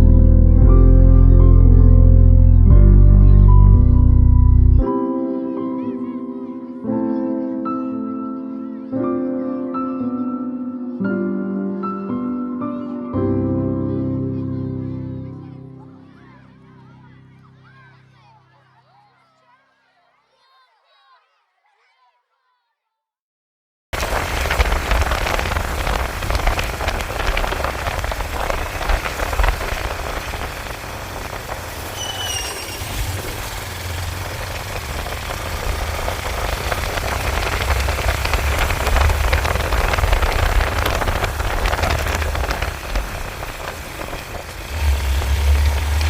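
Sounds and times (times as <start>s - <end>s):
motorcycle low rumble: 0.0s - 4.9s, 24.0s - 46.0s
rain pattering on microphone: 24.0s - 46.0s.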